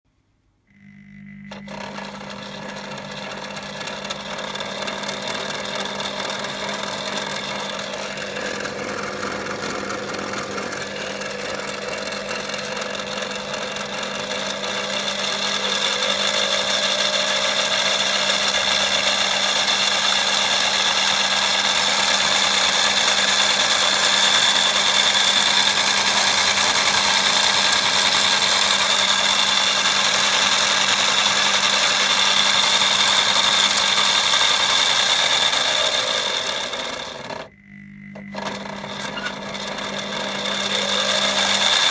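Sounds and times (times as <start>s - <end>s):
washing machine motor whirring: 0.6s - 41.9s.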